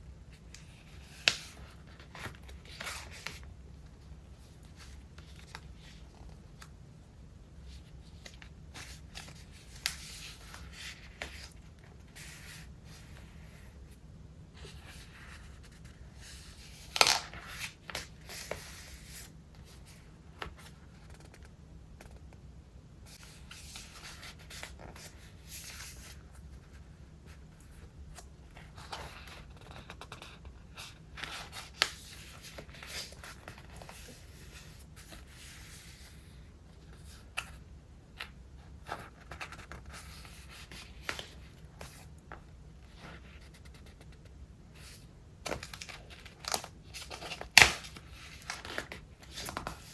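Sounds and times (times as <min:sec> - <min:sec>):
notebook pages turning: 0:00.4 - 0:06.7, 0:07.7 - 0:13.3, 0:14.6 - 0:19.3, 0:45.4 - 0:49.9.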